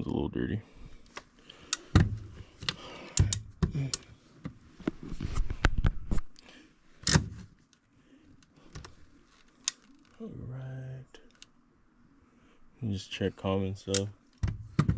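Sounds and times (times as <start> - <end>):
knocks and clicks of tools: 1.2 - 4.6, 13.9 - 14.9.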